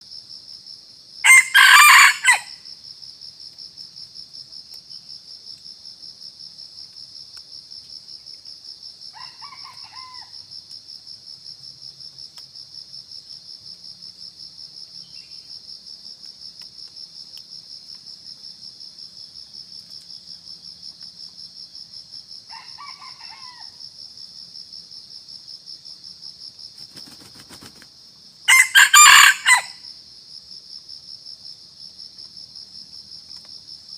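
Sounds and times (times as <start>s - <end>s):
cricket chirring: 0.0s - 33.9s
rooster crowing: 1.2s - 2.6s, 9.1s - 10.4s, 22.5s - 23.8s, 28.5s - 29.9s.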